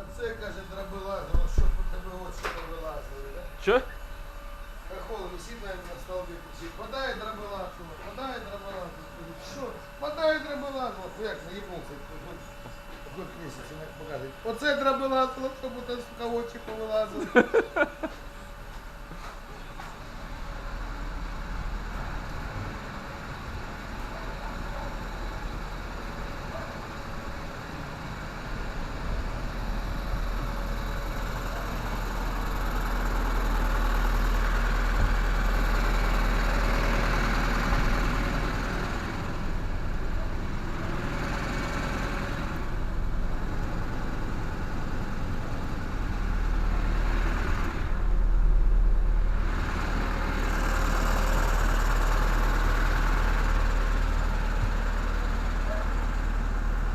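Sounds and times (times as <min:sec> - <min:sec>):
engine humming: 0:15.5 - 0:56.9.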